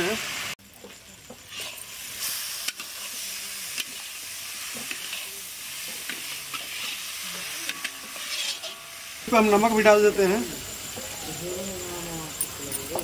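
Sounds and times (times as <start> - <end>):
food sizzling in oil: 0.0 - 13.0
metal spatula scraping a pan: 1.4 - 9.9.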